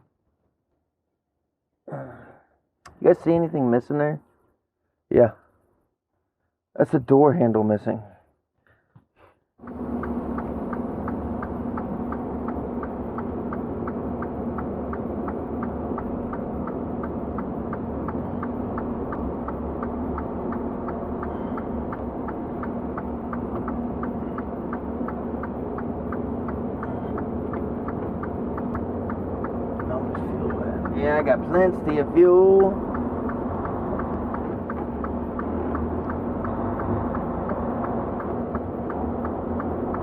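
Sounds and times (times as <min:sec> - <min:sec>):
truck engine drone from cab: 0:08.4 - 0:40.0
fast light ticking: 0:09.6 - 0:40.0.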